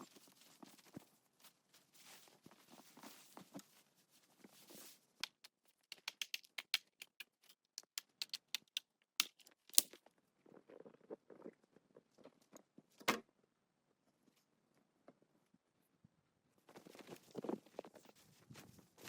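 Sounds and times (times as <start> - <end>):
soft rustle: 0.0 - 5.8
sharp irregular clicks and snaps: 5.2 - 10.0.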